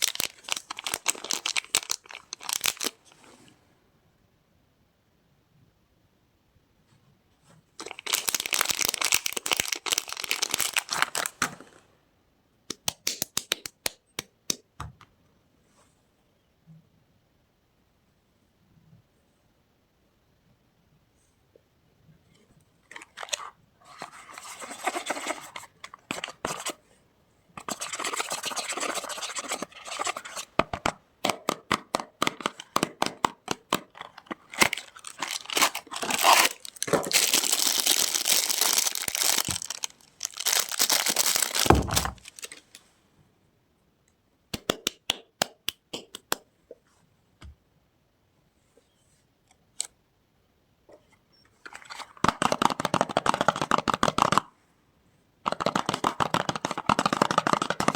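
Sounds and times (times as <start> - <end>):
packaging crackles: 0.0 - 3.0, 7.8 - 11.4, 33.8 - 42.8
packaging tearing and rustling: 0.0 - 3.0, 7.8 - 11.6, 33.8 - 42.8.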